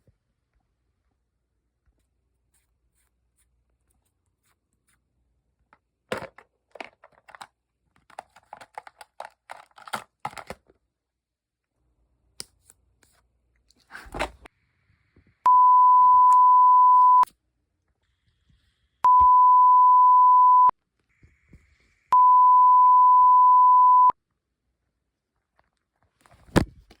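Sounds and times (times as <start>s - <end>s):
long electronic beeps: 15.5s - 17.2s, 19.1s - 20.7s, 22.2s - 24.1s.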